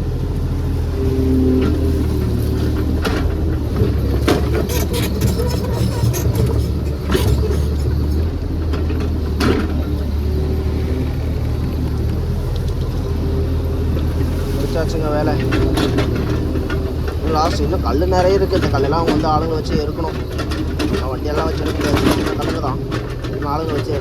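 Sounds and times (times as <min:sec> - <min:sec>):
excavator diesel engine running: 0:00.0 - 0:24.0
metallic clanks of bucket: 0:02.6 - 0:09.9.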